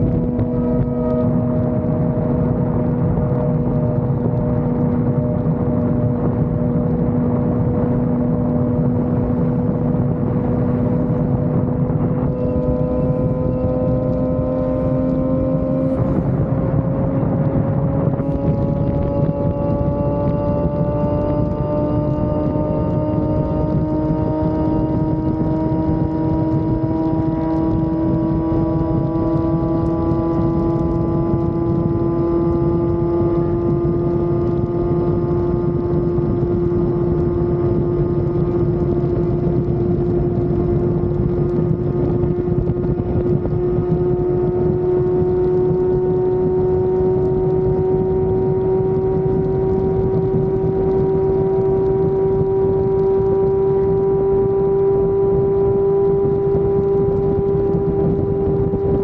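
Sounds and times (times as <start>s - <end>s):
low rushing noise: 0.0s - 32.0s
motorcycle engine at high revs: 0.0s - 59.0s.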